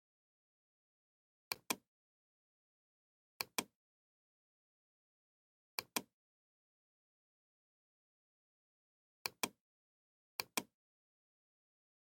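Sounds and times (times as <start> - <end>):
computer mouse clicking: 1.5 - 1.8, 3.4 - 3.7, 5.8 - 6.1, 9.3 - 9.6, 10.4 - 10.7.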